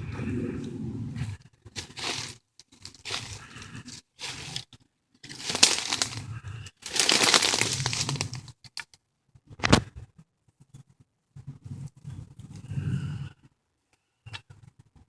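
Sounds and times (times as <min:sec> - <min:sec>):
footsteps crunching on path: 0:01.8 - 0:04.6, 0:05.3 - 0:08.5.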